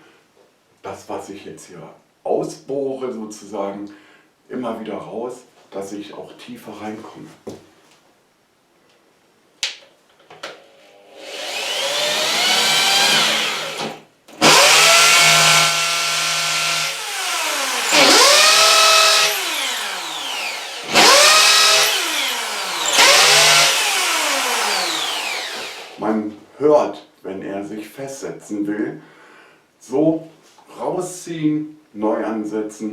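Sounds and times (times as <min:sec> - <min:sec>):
hammer drill boring into wall: 0:11.2 - 0:26.0.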